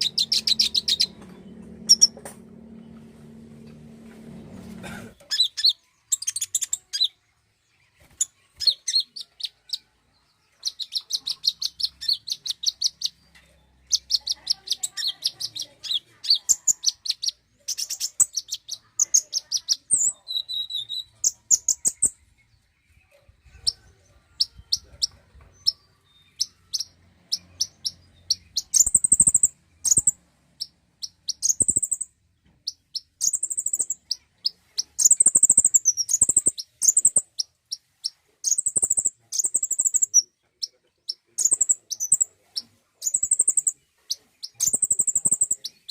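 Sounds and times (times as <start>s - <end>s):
songbird chirping trills: 0.0s - 45.9s.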